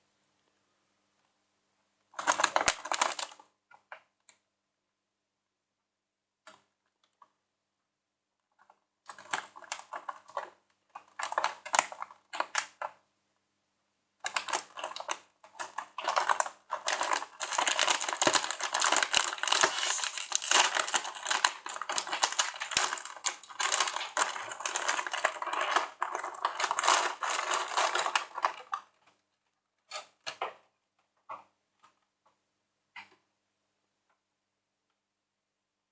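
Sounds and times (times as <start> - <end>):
plastic packet crinkling: 16.0 - 28.6.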